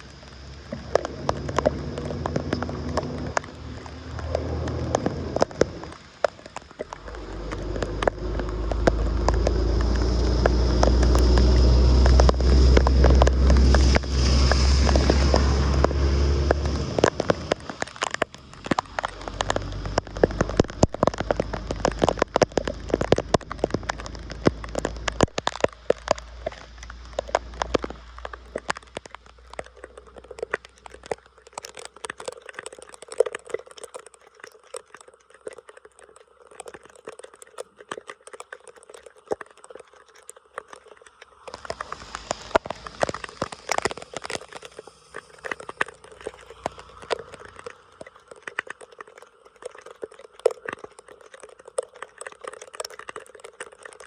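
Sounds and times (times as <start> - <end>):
dense crackles and clicks: 0.0 - 54.0
water splashing and pattering: 0.0 - 54.0
heavy low rumble: 6.9 - 17.6.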